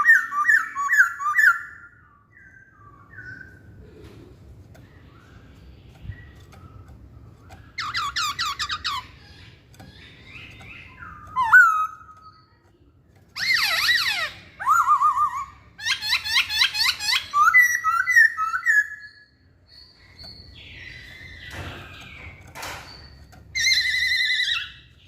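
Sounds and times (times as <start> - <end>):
bird singing whistled phrases: 13.4 - 21.6.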